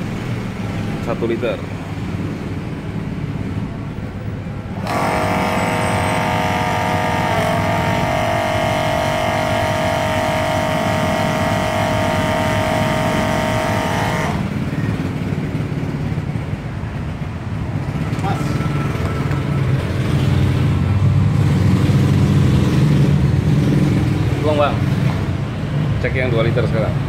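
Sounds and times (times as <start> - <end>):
electric pump motor running: 4.7 - 14.8.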